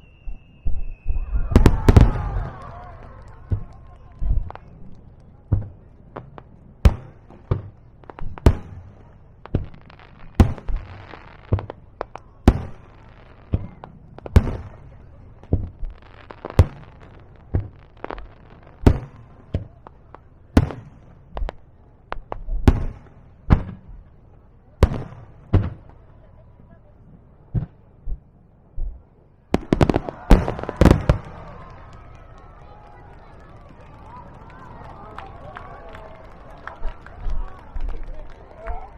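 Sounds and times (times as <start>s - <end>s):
fireworks shells booming: 0.0s - 24.1s, 29.6s - 34.3s.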